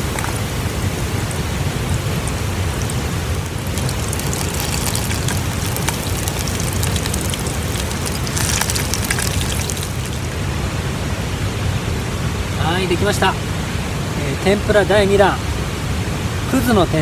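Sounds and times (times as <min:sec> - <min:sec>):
tempura sizzling in hot oil: 0:00.0 - 0:10.4.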